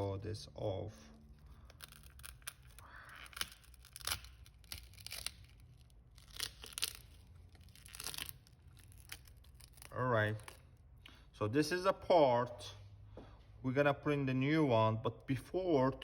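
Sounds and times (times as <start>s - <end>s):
phone screen crackling and tearing: 1.4s - 10.6s.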